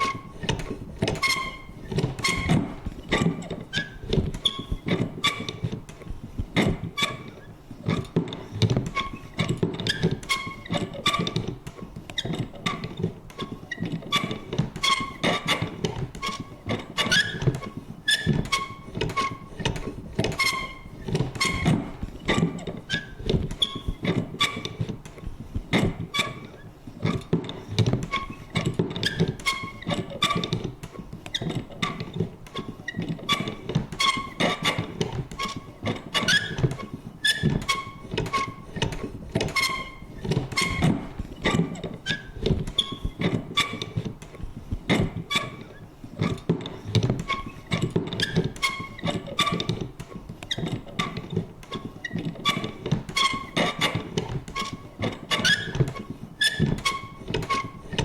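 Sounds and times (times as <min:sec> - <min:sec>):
lever creaking squeaks: 0:00.0 - 0:58.0.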